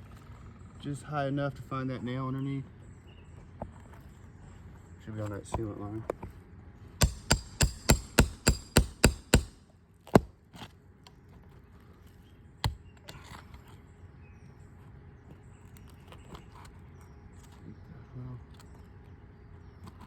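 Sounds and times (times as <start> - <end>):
hammer tapping on metal: 7.0 - 9.6.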